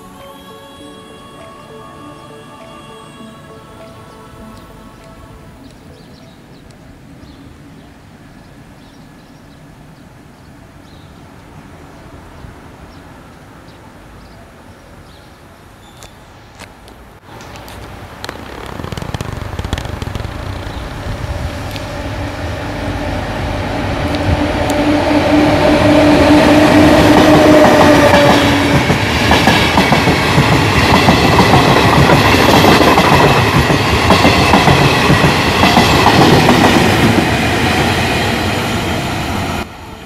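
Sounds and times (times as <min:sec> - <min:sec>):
electric locomotive hum: 0:00.0 - 0:08.7, 0:17.3 - 0:40.0.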